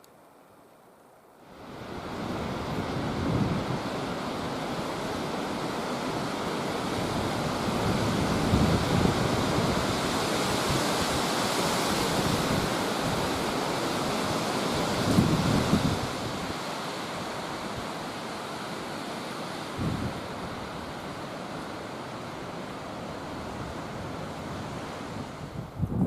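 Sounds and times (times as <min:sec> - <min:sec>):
wind buffeting microphone: 0:01.7 - 0:16.7, 0:19.8 - 0:21.2, 0:23.2 - 0:26.0.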